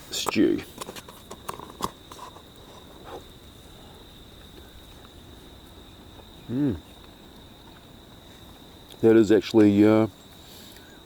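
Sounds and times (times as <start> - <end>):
high insect trill: 0.0 - 11.0.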